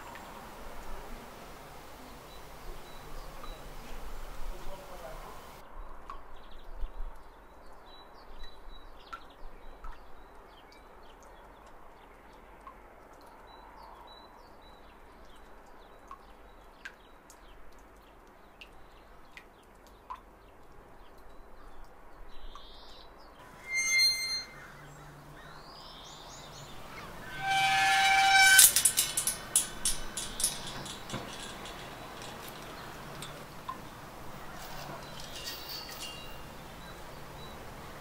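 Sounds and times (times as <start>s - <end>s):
faint ambient hiss: 0.0s - 5.6s, 24.6s - 38.0s.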